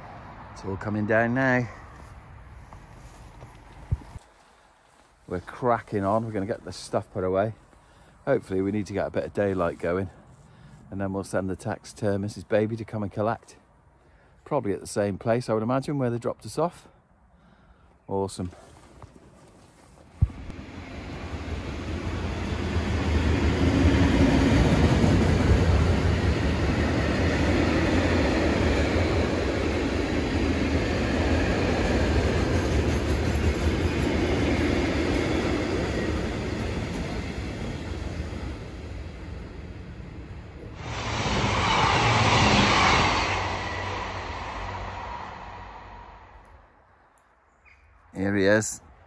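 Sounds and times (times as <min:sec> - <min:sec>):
train passing: 0:20.4 - 0:46.7
bright rushing noise: 0:40.8 - 0:46.6.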